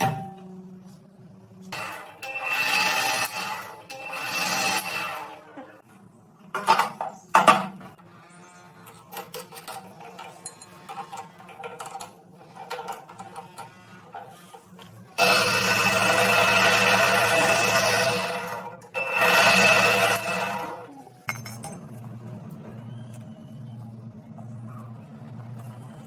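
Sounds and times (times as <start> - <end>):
metal tools clinking: 9.3 - 12.1.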